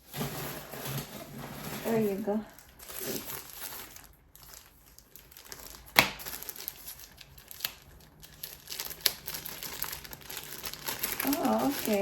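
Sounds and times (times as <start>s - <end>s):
packaging crinkling and rustling: 0.0s - 12.0s
sharp packaging snaps: 5.3s - 12.0s.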